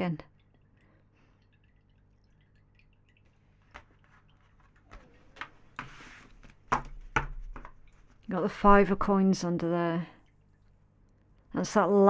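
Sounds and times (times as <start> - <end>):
cards clicking on table: 3.7 - 8.1
cards sliding rustle: 3.7 - 8.2
soft knocks on table: 4.9 - 7.8.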